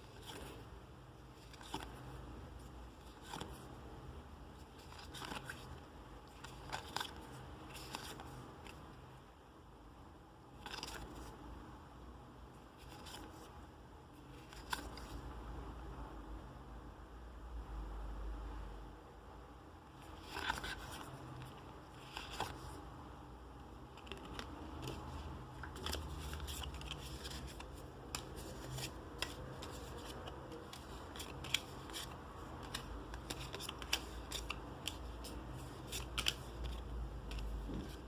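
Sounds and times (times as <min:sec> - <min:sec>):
trading cards and packaging handled: 0:00.0 - 0:09.0, 0:10.5 - 0:11.4, 0:12.6 - 0:13.5, 0:14.1 - 0:15.3, 0:19.9 - 0:38.0
low steady hum: 0:00.0 - 0:38.0.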